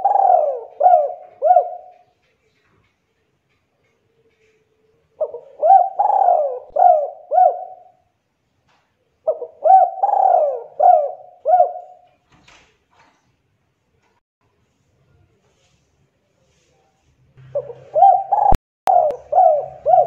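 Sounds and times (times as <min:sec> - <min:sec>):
dove cooing: 0:00.0 - 0:02.2, 0:04.1 - 0:08.0, 0:09.2 - 0:12.0, 0:17.4 - 0:20.0.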